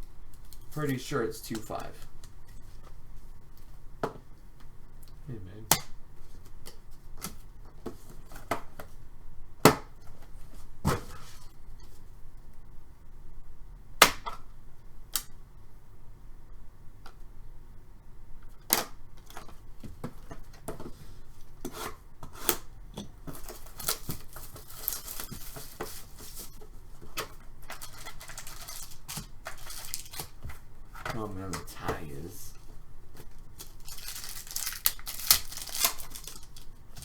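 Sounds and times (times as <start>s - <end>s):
plastic wrapper crinkling: 23.4s - 26.6s, 27.6s - 30.6s, 33.2s - 37.0s.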